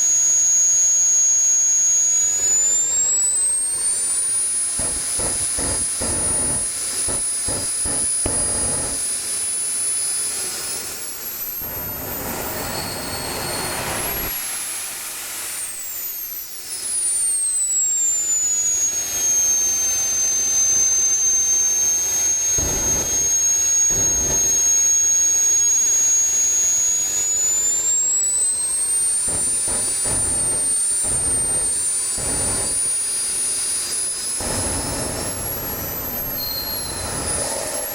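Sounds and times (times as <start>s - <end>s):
model jet turbine whine: 0.0s - 37.9s
rushing exhaust hiss: 29.3s - 37.9s.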